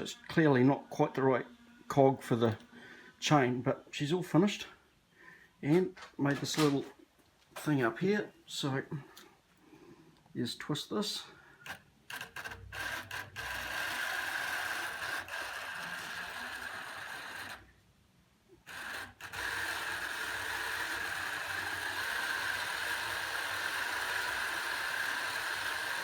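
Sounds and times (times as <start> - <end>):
drill motor whining: 11.7 - 17.8, 18.6 - 26.0.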